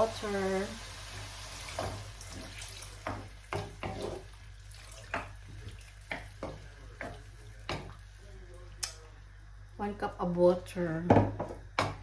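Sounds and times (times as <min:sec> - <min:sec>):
water pouring into a pan: 0:00.4 - 0:03.0, 0:04.5 - 0:06.0.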